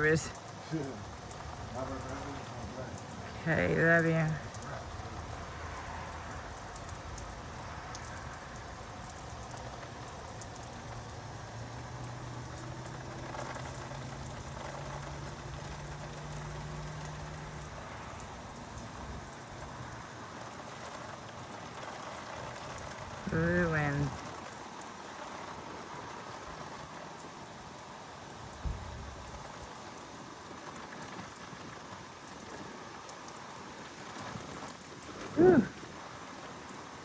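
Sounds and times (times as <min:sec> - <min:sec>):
low steady hum: 0:00.0 - 0:36.8
wind on microphone: 0:28.4 - 0:29.4.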